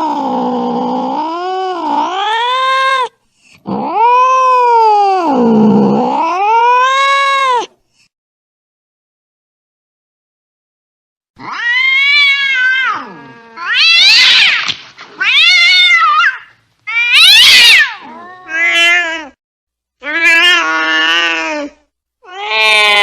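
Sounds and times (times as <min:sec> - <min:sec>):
angry cat yowling: 0:00.0 - 0:07.7, 0:11.4 - 0:19.4, 0:20.0 - 0:23.0.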